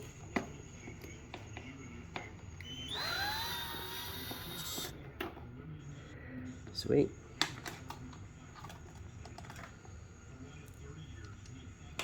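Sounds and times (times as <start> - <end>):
power drill whining: 2.6 - 4.9.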